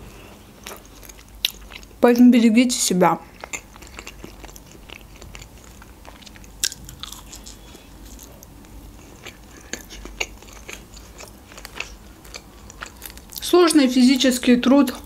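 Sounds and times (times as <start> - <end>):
chewing with mouth closed: 3.4 - 13.4.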